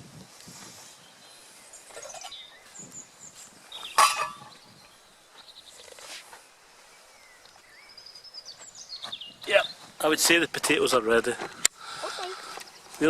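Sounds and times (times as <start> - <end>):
faint high bird chirps: 1.1 - 6.1, 6.9 - 9.9
metallic pot lid clank: 4.0 - 4.5.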